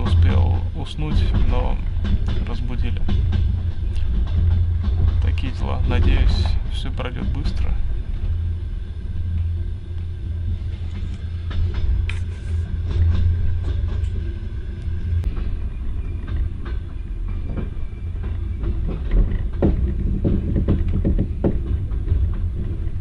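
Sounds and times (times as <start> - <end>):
train carriage rumble: 0.0 - 23.0
wheel clicks and knocks: 16.2 - 23.0.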